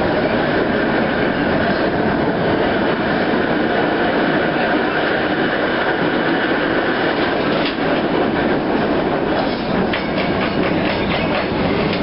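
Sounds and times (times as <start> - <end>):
streetcar running on rails: 0.0 - 12.0
wheels clicking on track: 9.3 - 12.0.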